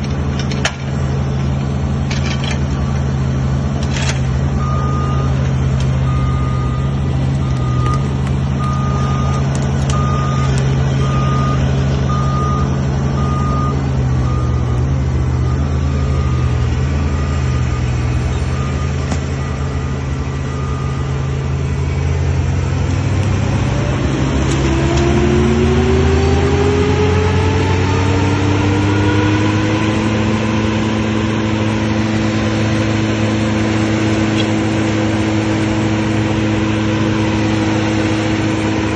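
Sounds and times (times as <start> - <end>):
truck engine running and revving: 0.0 - 38.9
reversing alarm beeping: 4.0 - 22.1, 23.7 - 31.6.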